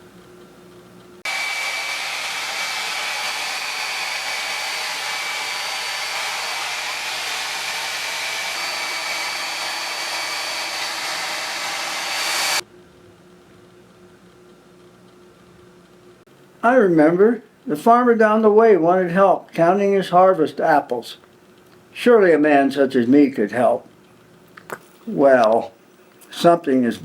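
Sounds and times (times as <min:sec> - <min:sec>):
loud hiss with high whine: 0:01.3 - 0:12.6.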